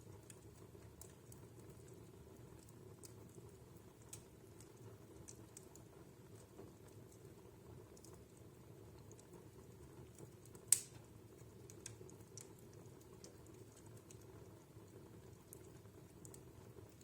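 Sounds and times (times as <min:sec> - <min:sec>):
wood fire crackling: 0:00.0 - 0:17.0
sharp loud crack of fire: 0:10.7 - 0:11.1.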